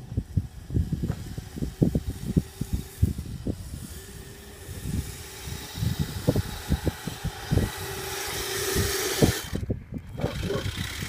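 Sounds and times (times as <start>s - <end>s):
toy snowcat motor whirring: 0.0s - 11.0s.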